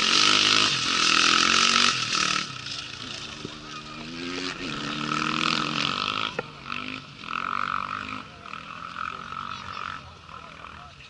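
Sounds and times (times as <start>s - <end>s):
motorcycle engine: 0.0s - 11.0s.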